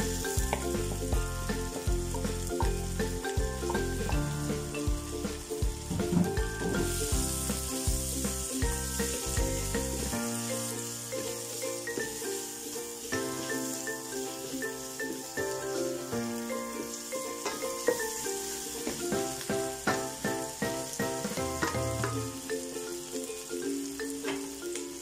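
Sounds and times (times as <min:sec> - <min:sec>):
background music with steady beat: 0:00.0 - 0:12.4, 0:18.8 - 0:22.5
pork sizzling in hot oil: 0:00.0 - 0:25.0.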